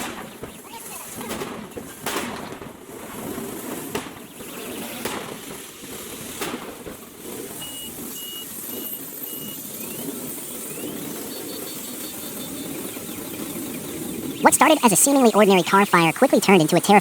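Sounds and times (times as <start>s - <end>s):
high beeps: 8.2s - 17.0s.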